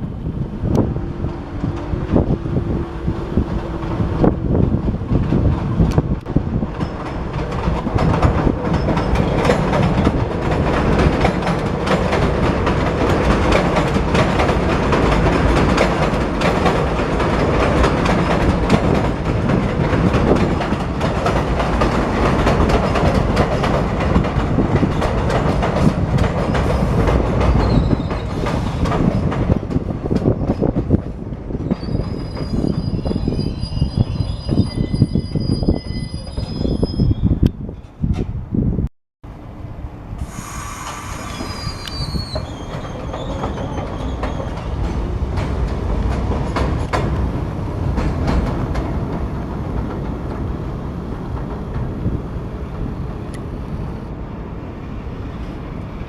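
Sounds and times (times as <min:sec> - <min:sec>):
subway train rumbling on rails: 0:00.0 - 0:56.0.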